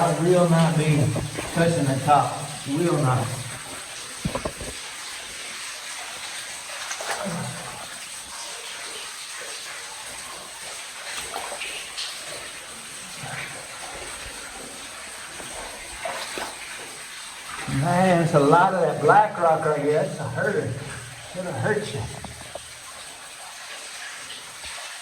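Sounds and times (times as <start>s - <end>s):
water trickling and splashing: 0.0s - 25.0s
knocks and scrapes: 0.9s - 1.8s, 3.4s - 4.8s.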